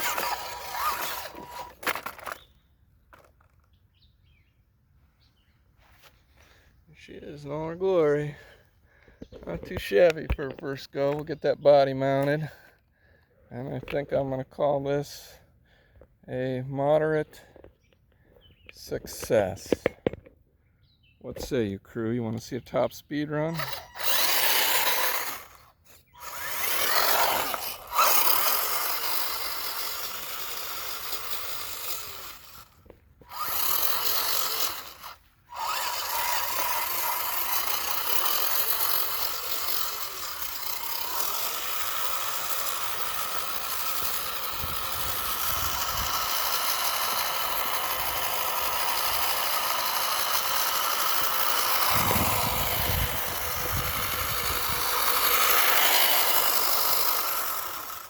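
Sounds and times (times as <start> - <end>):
toy electric motor whirring: 0.0 - 3.7, 22.7 - 58.0.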